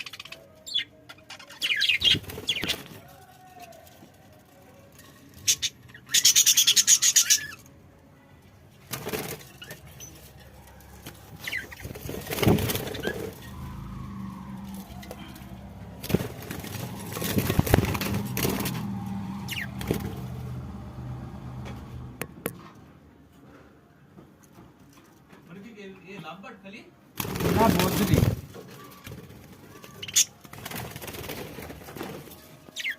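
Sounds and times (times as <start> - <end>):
budgies flapping wings: 1.8 - 3.2, 11.0 - 20.6, 27.2 - 32.9.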